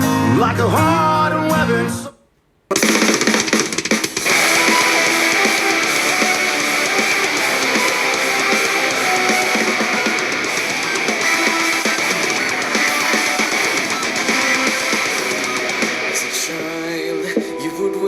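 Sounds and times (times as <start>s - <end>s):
drums: 0.0s - 2.0s, 2.7s - 18.0s
electric guitar: 4.2s - 18.0s.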